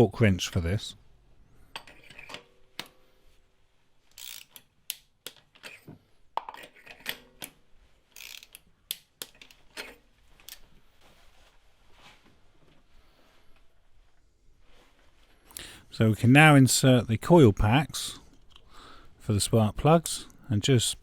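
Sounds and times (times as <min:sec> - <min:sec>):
torque wrench clicking: 0:04.1 - 0:05.4, 0:08.2 - 0:09.5.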